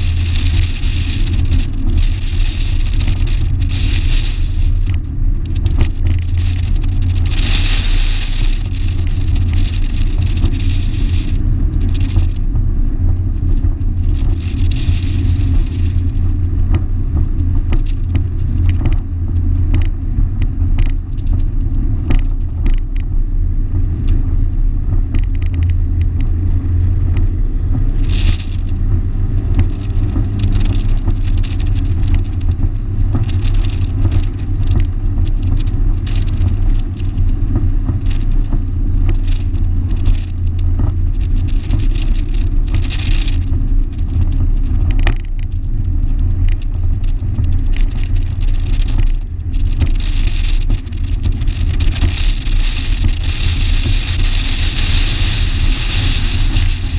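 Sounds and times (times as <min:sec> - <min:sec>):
rattles and knocks: 0:00.0 - 0:23.1, 0:24.8 - 0:55.0
car engine droning at speed: 0:00.0 - 0:56.9
road and wind noise: 0:00.0 - 0:56.9.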